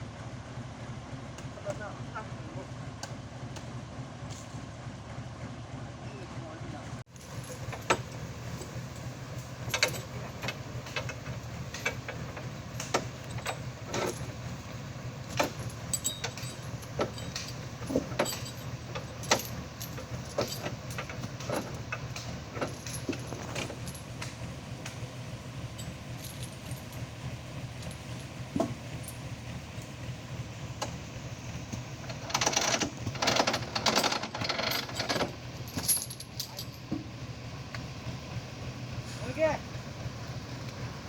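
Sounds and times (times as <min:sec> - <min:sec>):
truck engine hum: 0:00.0 - 0:41.0
loose metal parts rattling: 0:07.2 - 0:29.4, 0:31.7 - 0:37.0.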